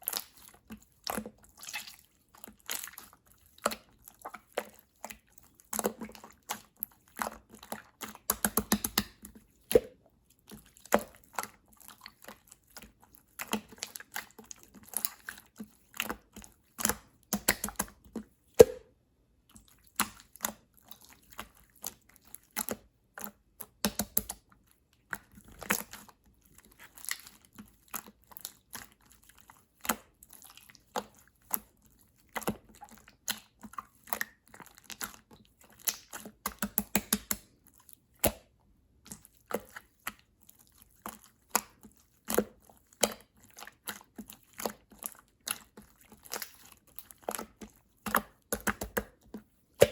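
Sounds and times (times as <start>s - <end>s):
slime squeezed with sticky clicks: 16.8s - 18.0s, 35.8s - 37.5s.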